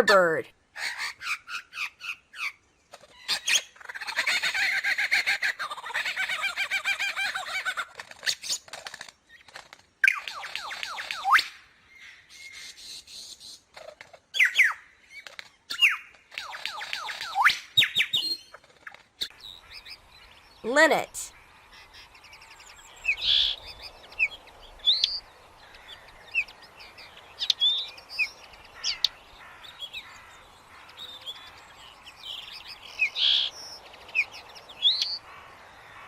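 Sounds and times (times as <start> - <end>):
lyrebird singing: 19.2 - 36.0.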